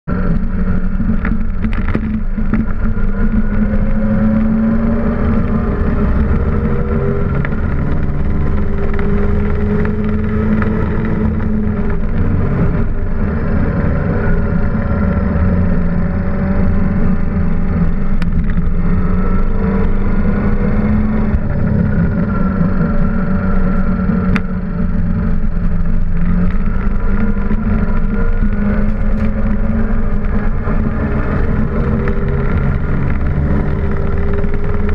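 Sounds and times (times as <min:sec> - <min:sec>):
race car engine revving: 0:00.1 - 0:34.9.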